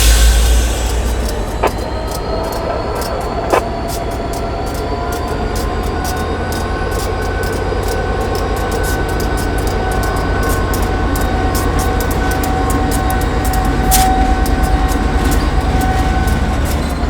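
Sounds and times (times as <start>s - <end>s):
high steady tones: 0.0s - 16.5s
train rumbling on rails: 0.0s - 17.0s.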